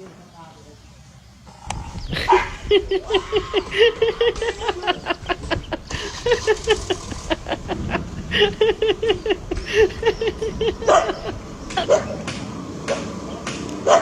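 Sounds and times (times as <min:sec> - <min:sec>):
dog yipping: 0:02.1 - 0:05.7, 0:09.7 - 0:12.3.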